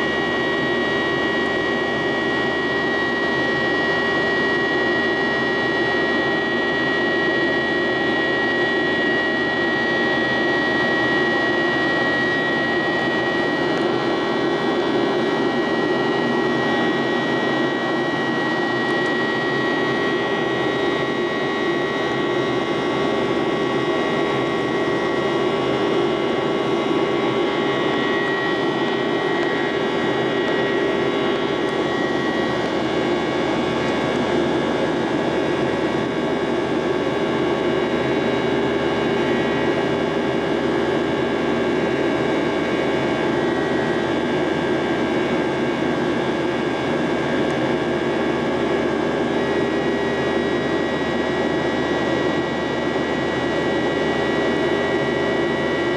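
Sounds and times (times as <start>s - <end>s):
high whine tones: 0.0s - 55.9s
jet engines roaring: 0.0s - 55.9s.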